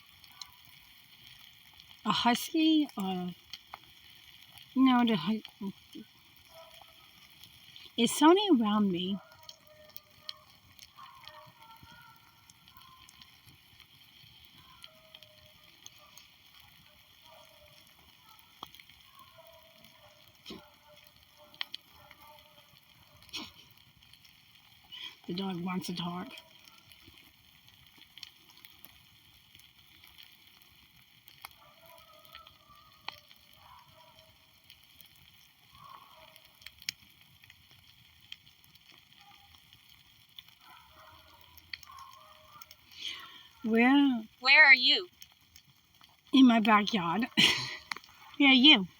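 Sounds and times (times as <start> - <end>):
wood fire crackling: 0.0 - 48.9
distant dog howling: 0.1 - 0.8, 6.4 - 7.4, 9.2 - 23.5, 26.1 - 27.2, 31.5 - 34.6, 35.6 - 36.6, 40.6 - 45.0
faint wavering voice-like calls: 8.2 - 13.4, 14.4 - 16.2.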